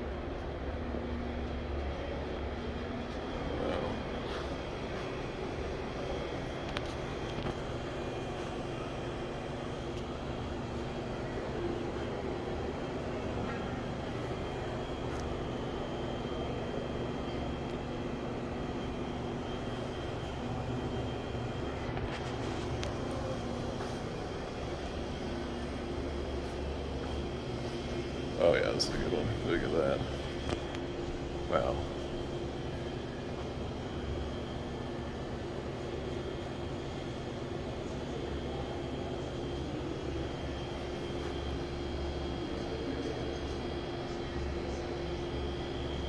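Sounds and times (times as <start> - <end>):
low mechanical drone: 0.0 - 46.0
machinery hum: 0.0 - 46.0.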